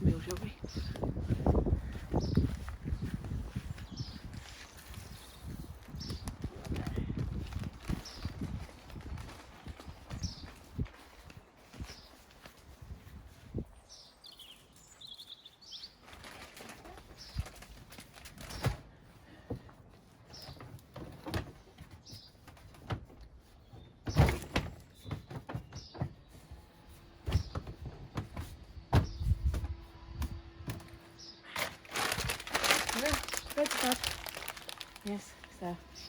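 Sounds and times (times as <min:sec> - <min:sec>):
small birds chirping: 0:00.0 - 0:16.2, 0:16.8 - 0:17.8, 0:20.0 - 0:21.0, 0:21.6 - 0:22.8, 0:23.4 - 0:26.7, 0:31.0 - 0:36.0.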